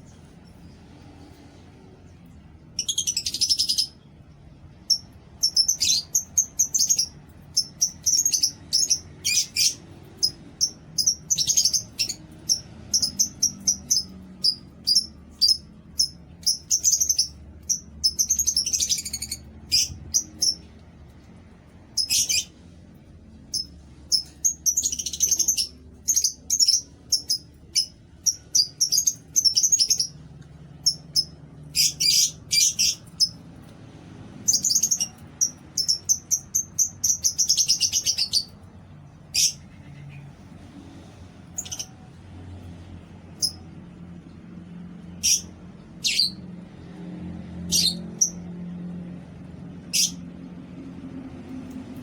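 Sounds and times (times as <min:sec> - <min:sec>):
lovebirds chirping shrilly: 0:04.9 - 0:20.7, 0:30.8 - 0:33.4, 0:34.4 - 0:38.6, 0:39.3 - 0:40.3.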